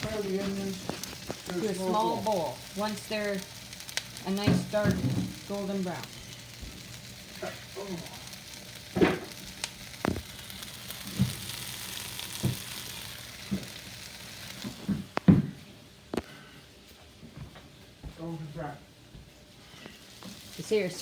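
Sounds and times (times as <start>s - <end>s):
onions sizzling in a pan: 0.0s - 16.5s, 18.4s - 21.0s.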